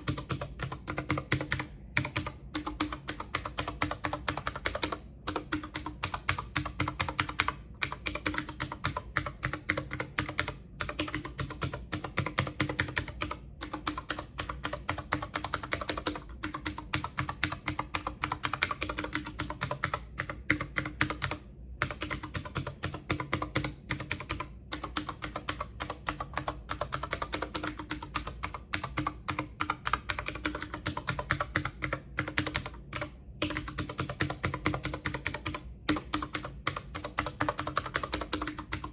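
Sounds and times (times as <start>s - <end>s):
rapid keyboard typing: 0.0s - 38.9s.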